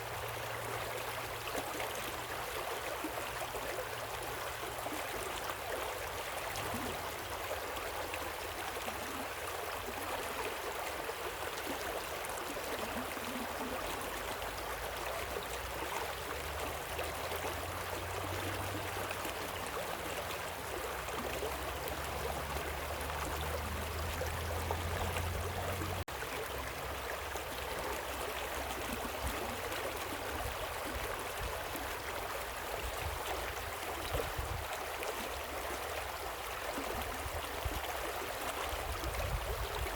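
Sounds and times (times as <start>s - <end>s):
waterfall and river rushing: 16.2s - 27.4s.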